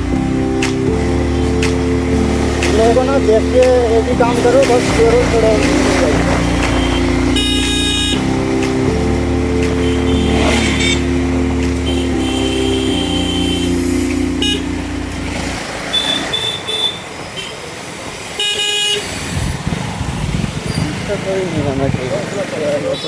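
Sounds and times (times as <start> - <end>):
motorcycle engine running: 0.0 - 15.9
vehicle horn honking: 4.3 - 8.6, 9.8 - 14.8, 15.8 - 17.7, 18.4 - 19.2.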